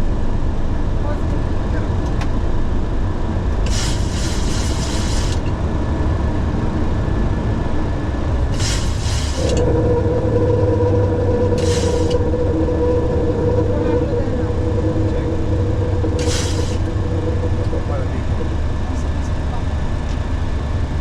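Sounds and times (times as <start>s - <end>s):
aircraft cockpit low rumble: 0.0s - 21.0s
steady hum: 0.0s - 21.0s
short bursts of hiss: 3.7s - 5.4s.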